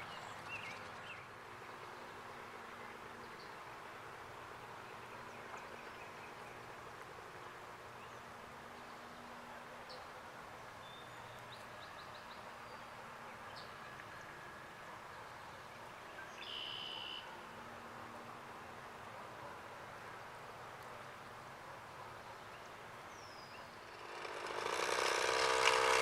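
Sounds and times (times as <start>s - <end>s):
bird chirps: 16.3s - 17.3s.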